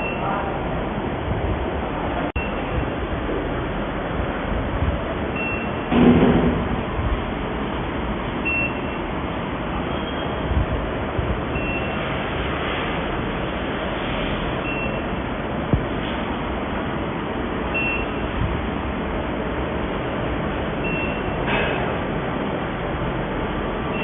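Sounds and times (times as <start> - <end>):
short high beeps: 0.0 - 0.3, 2.4 - 2.7, 5.4 - 5.8, 8.4 - 9.0, 11.5 - 12.0, 14.6 - 15.1, 17.7 - 18.3, 20.8 - 21.4.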